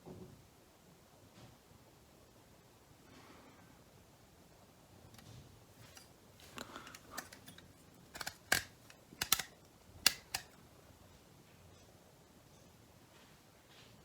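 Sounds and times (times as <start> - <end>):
plastic parts clicking: 5.1 - 10.6.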